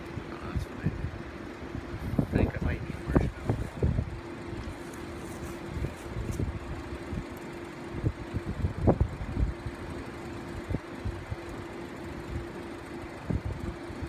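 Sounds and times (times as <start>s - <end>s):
bees buzzing: 0.0s - 8.4s
wind knocking on microphone: 2.0s - 4.1s.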